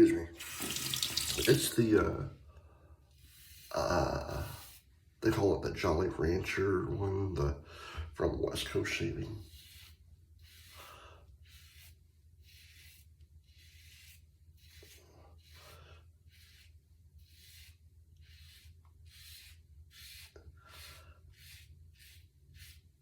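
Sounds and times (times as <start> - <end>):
razor scraping stubble: 0.4 - 2.0, 8.6 - 23.0.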